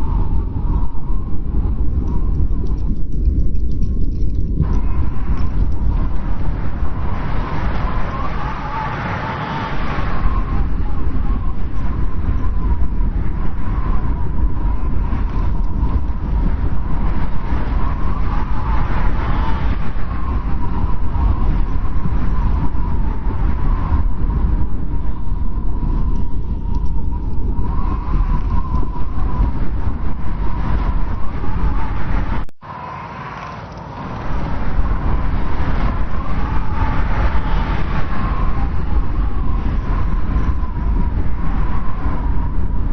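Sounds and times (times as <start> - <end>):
strong wind rumbling and whistling: 0.0 - 42.9.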